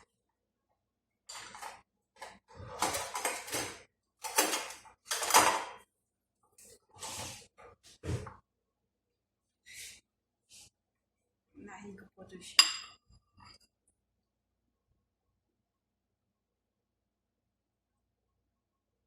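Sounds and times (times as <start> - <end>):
cookware and utensils clattering: 1.3 - 5.8, 12.6 - 13.6.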